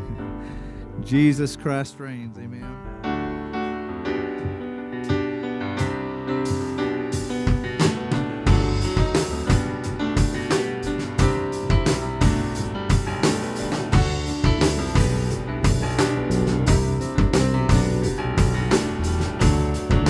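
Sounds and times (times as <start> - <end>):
piano chords: 0.0 - 20.0
drum kit beat: 4.3 - 20.0.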